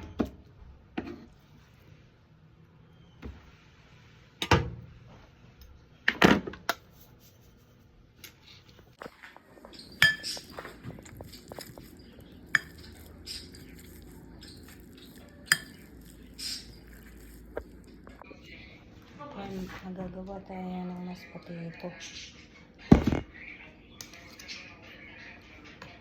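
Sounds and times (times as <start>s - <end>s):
dishes and cutlery clattering: 9.9s - 11.7s.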